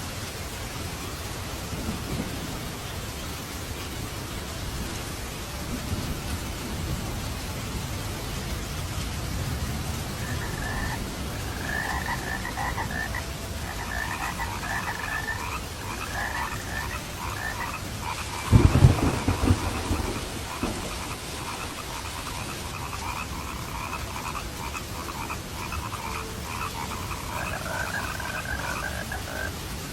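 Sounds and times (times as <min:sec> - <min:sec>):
steady rain: 0:00.0 - 0:29.9
frogs croaking: 0:09.8 - 0:29.7
deep thunderclap: 0:14.1 - 0:24.2.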